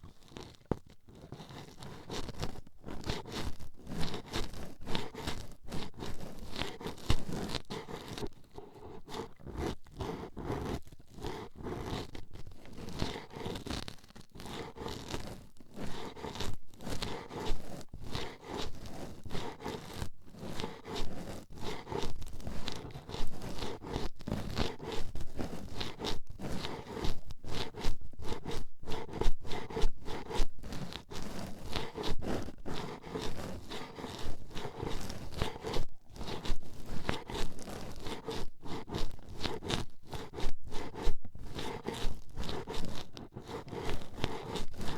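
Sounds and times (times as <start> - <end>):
toothpicks scratching microphone: 9.0 - 44.9.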